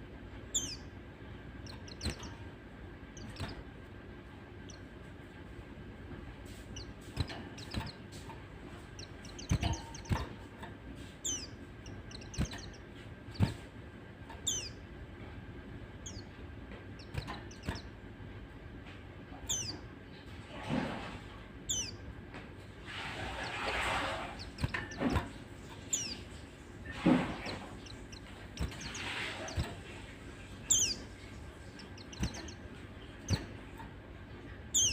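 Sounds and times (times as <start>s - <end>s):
birds giving high falling chirps: 0.4s - 3.8s, 6.4s - 14.9s, 16.0s - 18.0s, 19.3s - 20.0s, 21.6s - 22.0s, 23.0s - 34.9s
sharp clicks and knocks: 24.4s - 26.2s.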